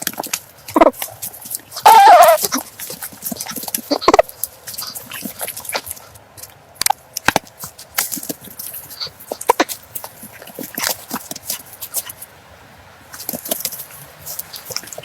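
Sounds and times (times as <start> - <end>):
wavering animal call: 1.8 - 2.7.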